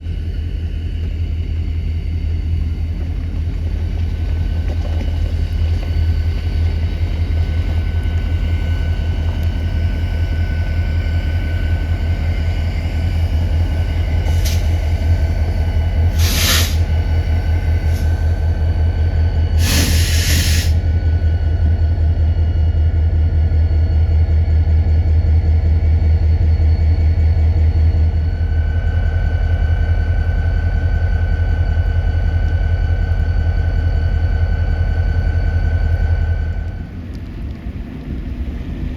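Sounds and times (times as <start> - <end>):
diesel locomotive rumbling: 0.0 - 38.9
air brake hiss: 14.3 - 14.9, 16.1 - 16.9, 17.9 - 18.4, 19.6 - 20.8.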